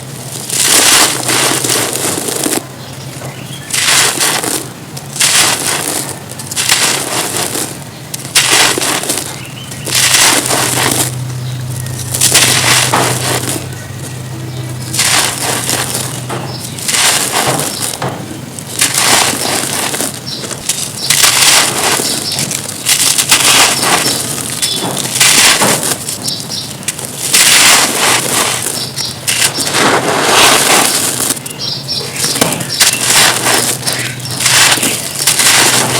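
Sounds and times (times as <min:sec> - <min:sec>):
cement chunks crunching: 0:00.0 - 0:35.9
faint low hum: 0:00.0 - 0:35.9.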